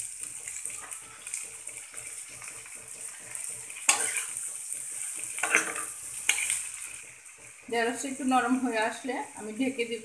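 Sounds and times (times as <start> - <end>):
steel spatula stirring: 0.0 - 9.5
okra sizzling in oil: 0.0 - 10.0.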